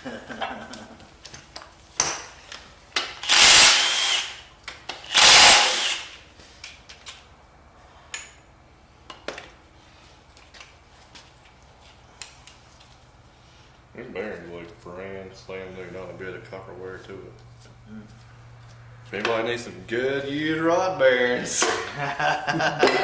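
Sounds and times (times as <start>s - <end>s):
power tool spinning bolts: 3.0s - 6.2s.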